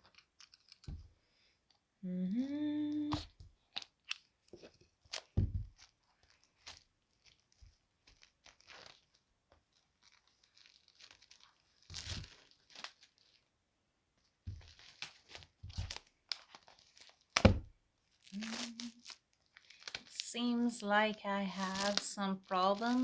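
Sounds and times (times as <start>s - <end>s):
packaging crinkling and tearing: 0.1s - 1.0s, 3.8s - 13.5s, 14.6s - 17.5s, 18.1s - 23.0s.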